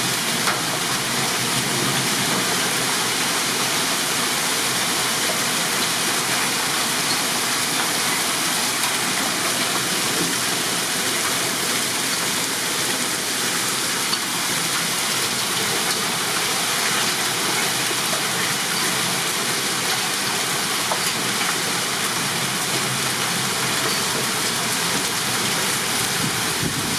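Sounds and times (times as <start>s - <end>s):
heavy rain and hail falling: 0.0s - 26.9s.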